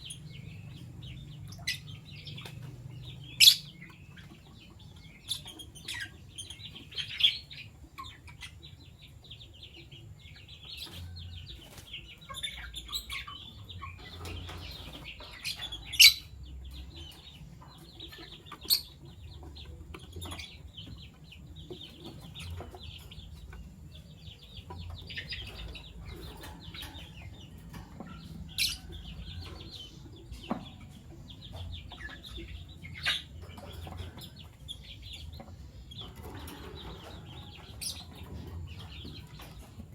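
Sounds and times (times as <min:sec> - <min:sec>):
lovebirds twittering: 0:00.0 - 0:39.9.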